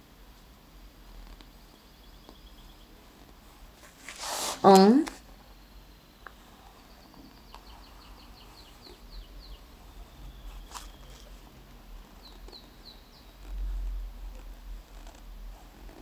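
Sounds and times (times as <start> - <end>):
bird chirping: 1.4 - 3.0, 5.7 - 14.0.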